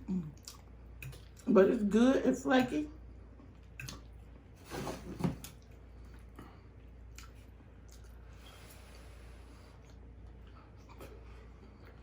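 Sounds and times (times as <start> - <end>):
close chewing and mouth sounds: 0.0 - 1.6, 3.3 - 4.6, 5.4 - 12.0.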